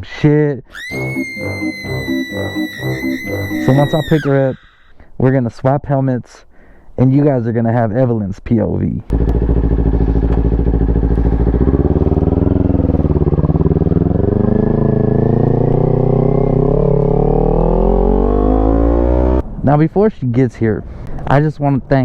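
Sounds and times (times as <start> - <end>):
motorcycle engine accelerating: 9.1 - 19.4.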